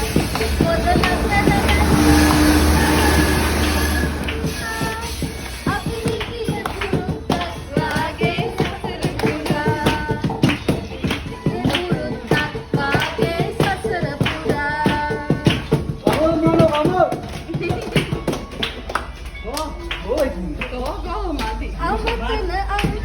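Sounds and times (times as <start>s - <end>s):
person singing: 0.0s - 10.2s
rhythmic clapping: 0.0s - 23.0s.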